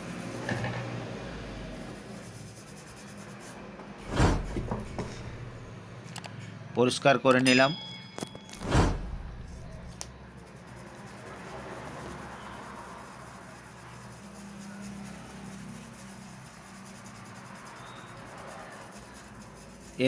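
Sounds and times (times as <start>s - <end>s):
low hum: 7.7s - 10.0s.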